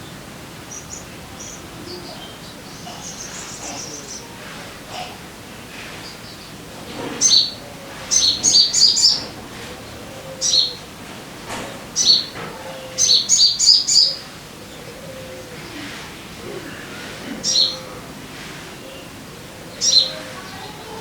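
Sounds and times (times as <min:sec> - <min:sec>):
bird chirping: 0:00.0 - 0:04.3, 0:07.2 - 0:10.9, 0:12.0 - 0:15.0
steady hiss: 0:00.0 - 0:21.0.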